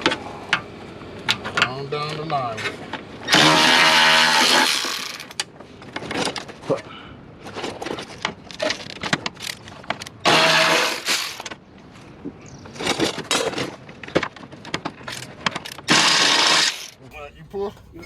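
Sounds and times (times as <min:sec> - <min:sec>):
tools and metal parts clanking: 0:12.7 - 0:15.9.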